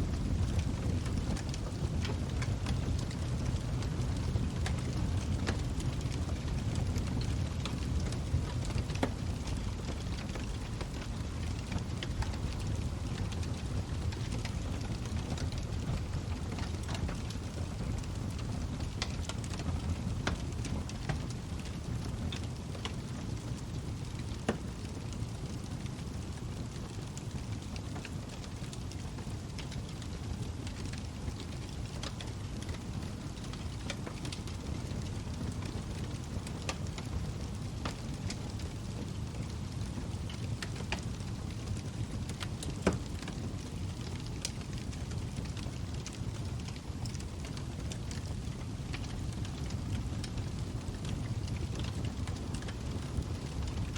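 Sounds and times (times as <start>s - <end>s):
log fire crackling: 0.0s - 53.9s.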